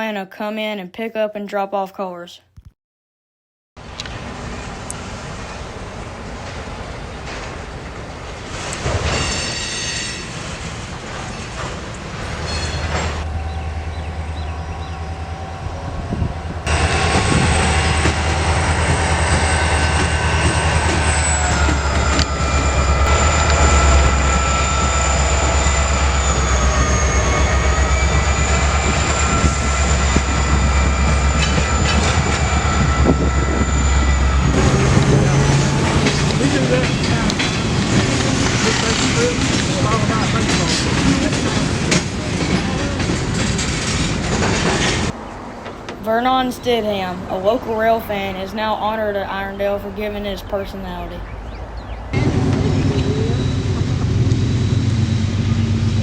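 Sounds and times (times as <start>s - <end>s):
diesel locomotive drone: 3.8s - 56.0s
train wheel squeal: 8.3s - 45.2s, 52.2s - 56.0s.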